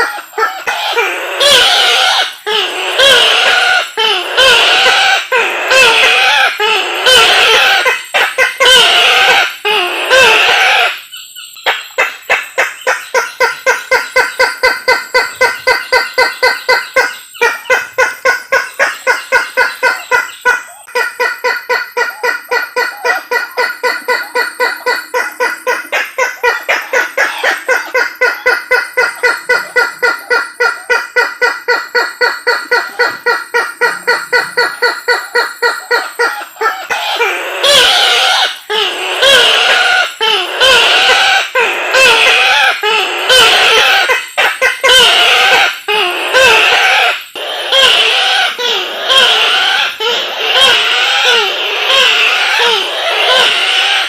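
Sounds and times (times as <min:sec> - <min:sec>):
waterhen calling: 0:11.7 - 0:54.0.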